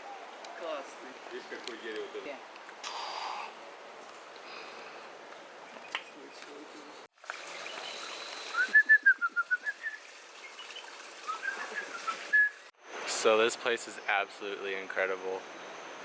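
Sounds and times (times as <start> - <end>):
outdoor background hiss: 0.0 - 16.0
bird singing whistled notes: 7.7 - 12.7.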